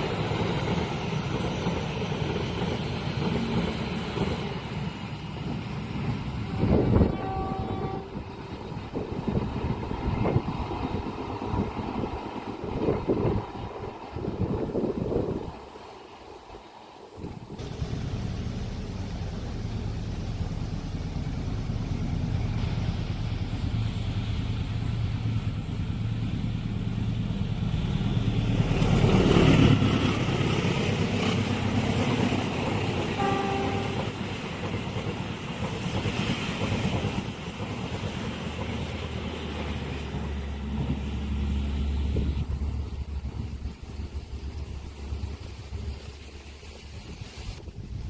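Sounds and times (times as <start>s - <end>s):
train carriages rolling over rails: 0.0s - 13.4s, 17.2s - 47.6s
train horn toot: 6.5s - 8.4s, 33.0s - 34.4s
locomotive engine rumble: 17.3s - 48.0s.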